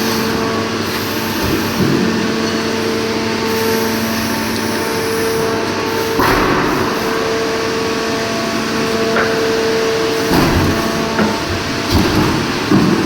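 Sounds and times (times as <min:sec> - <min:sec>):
factory machinery humming: 0:00.0 - 0:13.0
burst of machine noise: 0:03.4 - 0:09.1.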